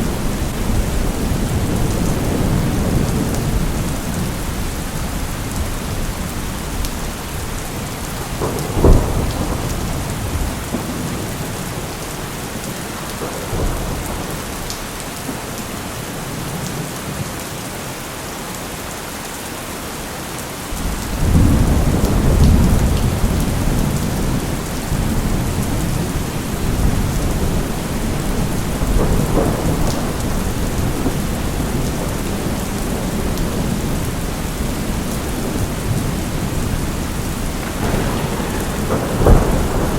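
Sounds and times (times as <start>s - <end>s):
rolling thunder rumble: 0.0s - 14.7s, 20.8s - 39.9s
steady rain: 0.0s - 39.9s
sharp thunderclap: 8.2s - 11.9s, 20.8s - 33.9s, 35.4s - 39.9s.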